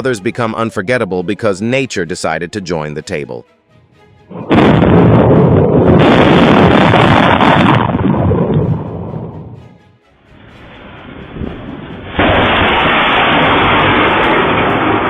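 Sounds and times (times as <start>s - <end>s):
thunderclap: 4.3s - 9.6s, 10.4s - 15.0s.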